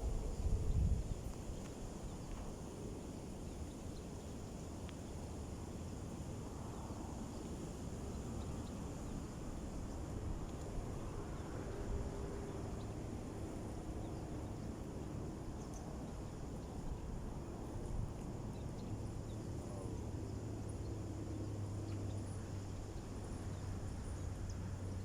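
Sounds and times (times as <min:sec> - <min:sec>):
wind rumbling on microphone: 0:00.0 - 0:03.0.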